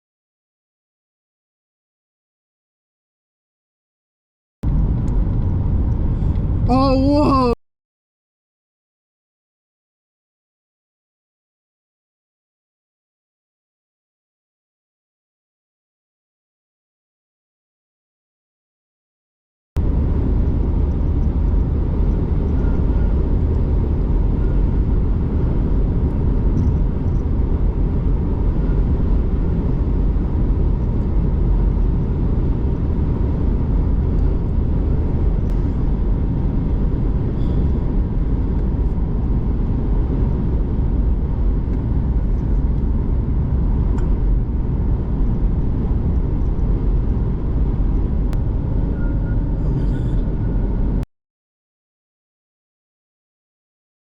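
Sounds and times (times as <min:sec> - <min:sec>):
car driving road and wind noise: 0:04.6 - 0:07.6, 0:19.8 - 0:51.0.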